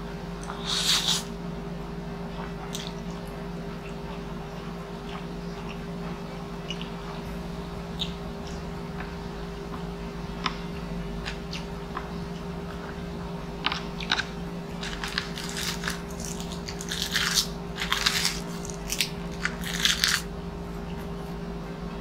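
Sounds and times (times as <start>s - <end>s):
steady low hum: 0.0s - 22.0s
wet chewing clicks: 6.6s - 7.0s
crisp crunching of seaweed: 13.7s - 20.3s.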